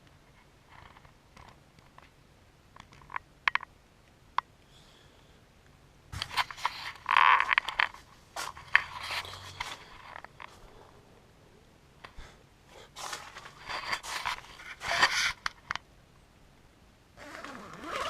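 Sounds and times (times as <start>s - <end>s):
close rustling and scraping: 6.2s - 11.0s, 12.0s - 15.8s.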